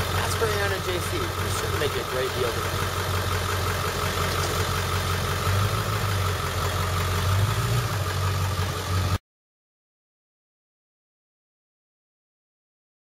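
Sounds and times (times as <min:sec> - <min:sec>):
diesel truck engine idling: 0:00.0 - 0:09.2.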